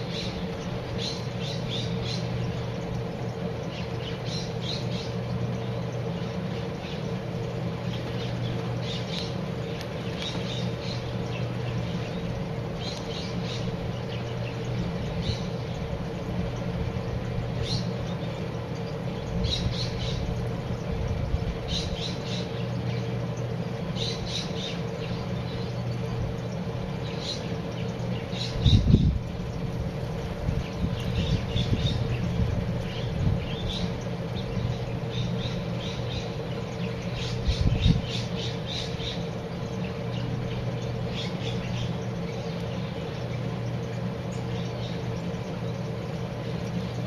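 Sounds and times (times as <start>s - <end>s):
birds calling in high chips: 0.0s - 47.0s
steady low hum: 0.0s - 47.0s.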